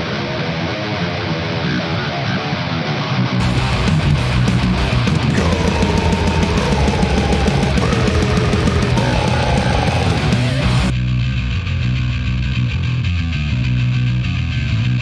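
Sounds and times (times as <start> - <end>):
guitar melody with bends: 1.5 - 10.9
heavy metal band playing: 3.4 - 11.0.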